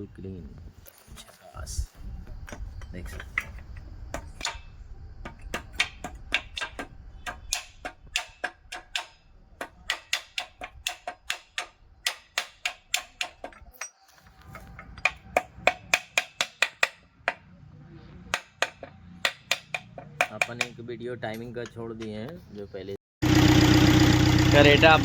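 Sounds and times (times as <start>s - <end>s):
hand tools tapping metal: 2.4s - 17.4s, 18.3s - 22.4s.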